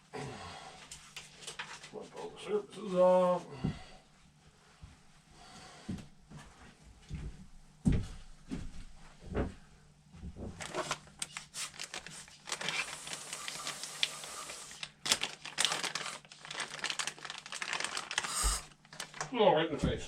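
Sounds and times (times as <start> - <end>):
aerosol spray hissing: 18.3 - 18.7.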